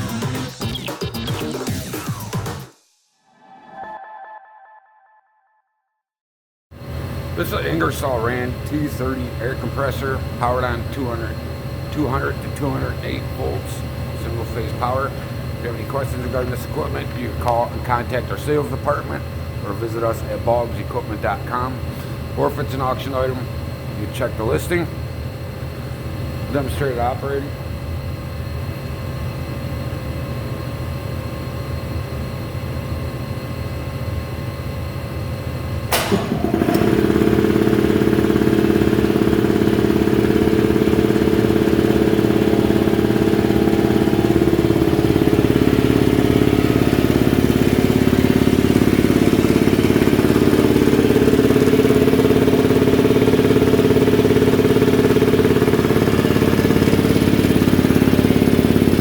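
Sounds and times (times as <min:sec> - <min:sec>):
air compressor running: 0:06.7 - 0:59.0
compressor switch click: 0:35.9 - 0:37.3.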